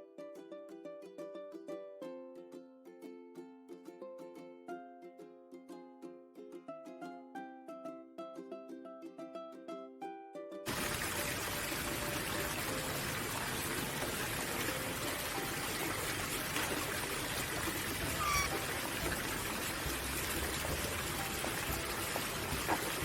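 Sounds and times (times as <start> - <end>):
running water rushing: 10.7 - 23.0
short bird call: 18.1 - 18.6.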